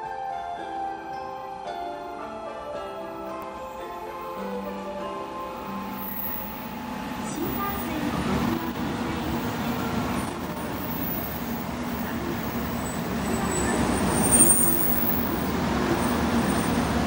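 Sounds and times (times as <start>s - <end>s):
train wheels rumbling on rail: 5.2s - 17.0s
high-pitched brake squeal: 5.9s - 6.7s, 12.8s - 15.3s.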